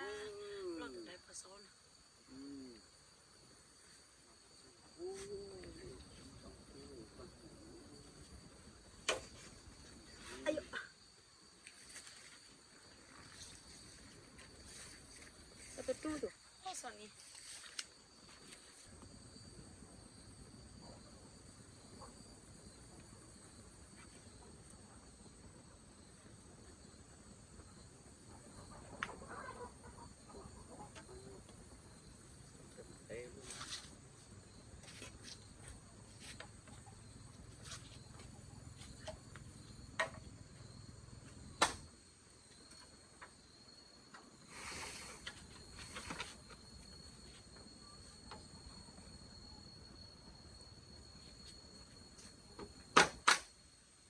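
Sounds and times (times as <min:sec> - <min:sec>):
insects droning: 0:00.0 - 0:54.0
chickens clucking softly: 0:28.6 - 0:31.5
sharp click: 0:41.6 - 0:41.8.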